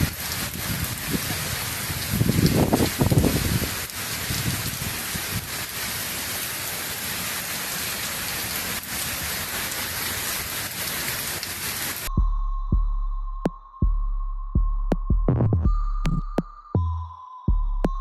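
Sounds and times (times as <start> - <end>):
heavy rain pouring: 0.0 - 12.1
throbbing electronic beat: 12.1 - 18.0.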